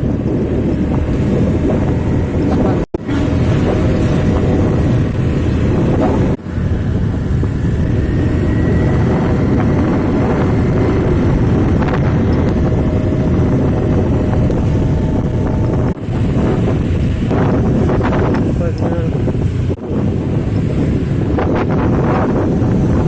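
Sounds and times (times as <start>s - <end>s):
trucks rumbling past: 0.0s - 23.0s
wind buffeting microphone: 0.0s - 23.0s.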